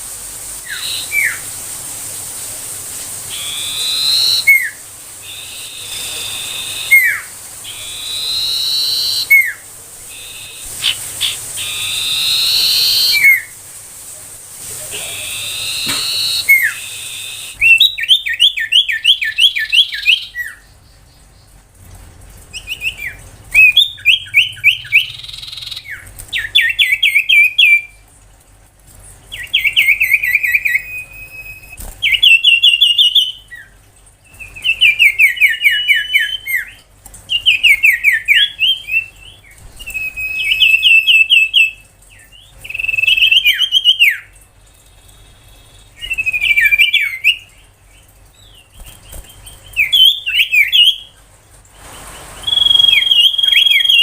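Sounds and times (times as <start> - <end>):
bird singing chirping notes: 0.7 - 1.4, 3.3 - 13.6, 15.0 - 21.5, 22.6 - 27.9, 29.3 - 33.7, 52.4 - 54.0.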